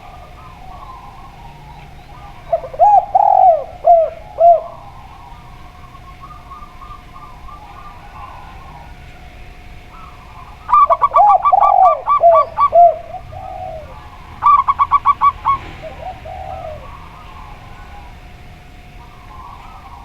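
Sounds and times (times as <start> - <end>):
faint bird calls: 0.0 - 20.0
low round dove coos: 0.0 - 20.0
short high dove coos: 10.0 - 18.2.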